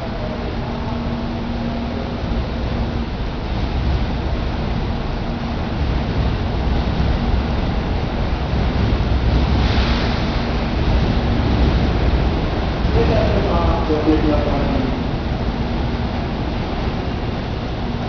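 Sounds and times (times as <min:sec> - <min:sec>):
faint hum: 0:00.0 - 0:18.0
train low rumble and hiss: 0:00.0 - 0:18.0.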